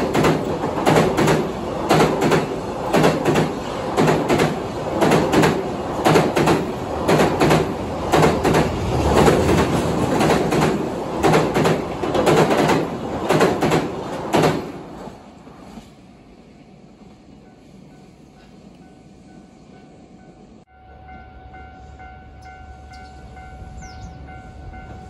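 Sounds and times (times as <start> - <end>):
wheels clacking over rail joints: 0.0 - 15.2
train rumble: 0.0 - 25.0.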